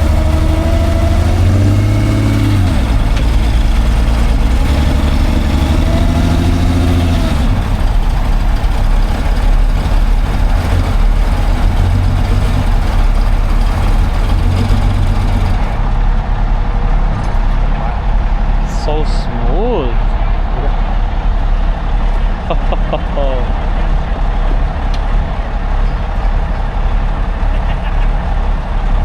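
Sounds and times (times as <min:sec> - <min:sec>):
vehicle engine running loudly: 0:00.0 - 0:29.0.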